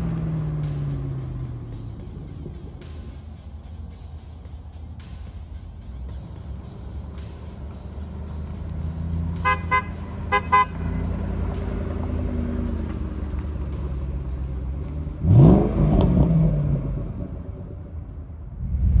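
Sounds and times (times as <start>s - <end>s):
car engine idling and revving: 0.0s - 19.0s
car horn tooting: 9.3s - 12.7s.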